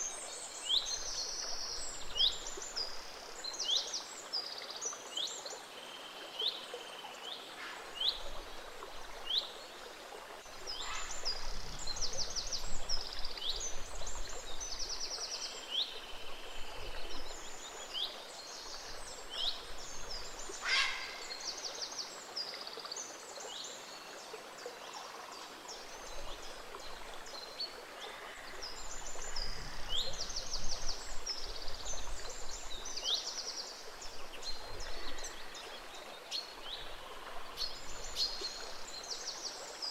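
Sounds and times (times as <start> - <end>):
stream flowing: 0.0 - 39.9
songbirds chirping and trilling: 10.5 - 22.2.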